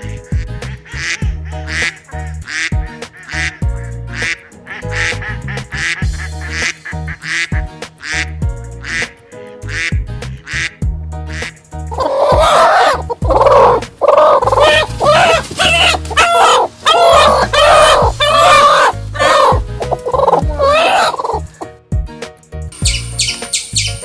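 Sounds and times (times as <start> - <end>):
music with steady beat: 0.0 - 16.2, 17.2 - 24.0
duck quacking: 0.8 - 21.6
loud animal call: 0.9 - 3.6, 11.4 - 21.6.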